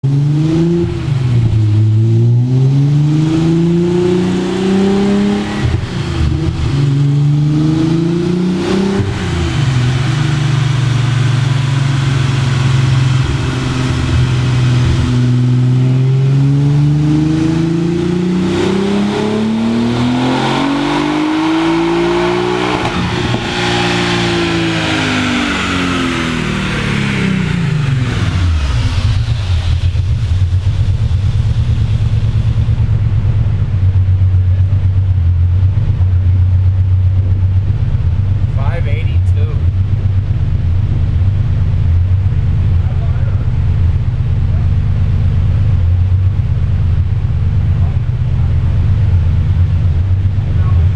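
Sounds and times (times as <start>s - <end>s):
car engine revving on dyno: 0.0s - 37.4s.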